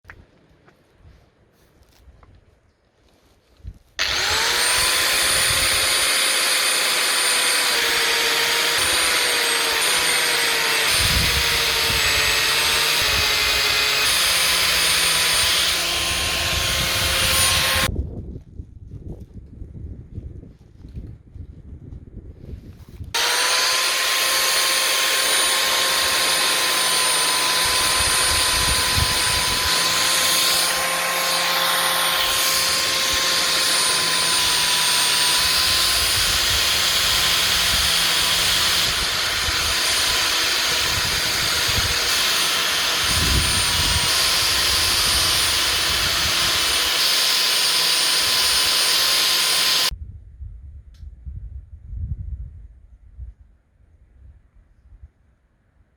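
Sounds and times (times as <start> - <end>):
angle grinder running: 4.0 - 17.9, 23.2 - 49.9.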